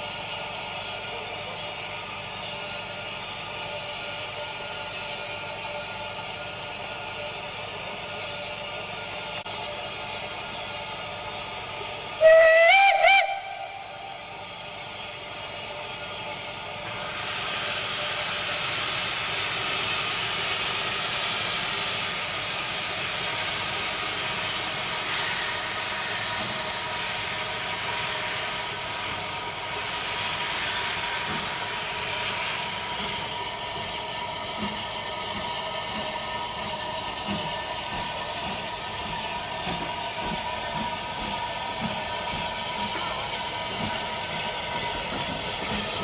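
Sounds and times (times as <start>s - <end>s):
steam locomotive running: 0.0s - 46.0s
loud steam hiss: 16.9s - 33.7s.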